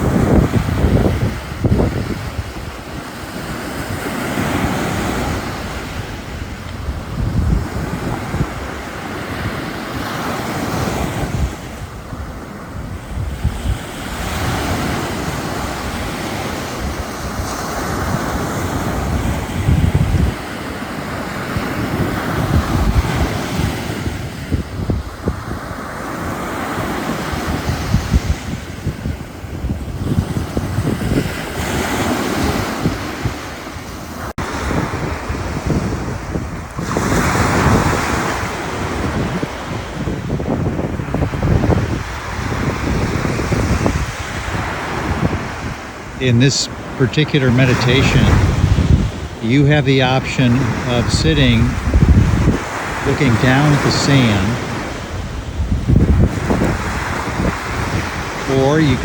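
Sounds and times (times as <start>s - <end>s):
wind buffeting microphone: 0.0s - 47.0s, 48.2s - 49.4s, 50.6s - 53.0s, 54.6s - 59.0s
ocean surf breaking: 0.0s - 59.0s.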